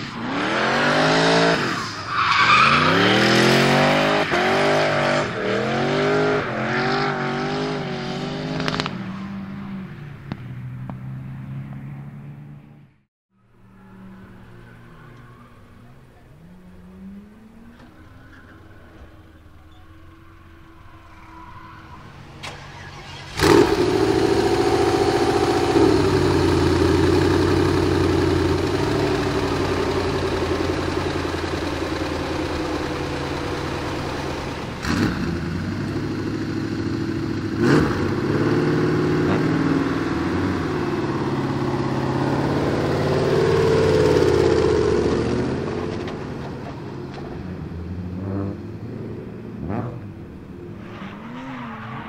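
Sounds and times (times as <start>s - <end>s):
engine revving: 0.0s - 11.9s, 20.2s - 52.0s
sharp cracks: 8.6s - 9.0s
car engine starting and idling: 14.2s - 52.0s.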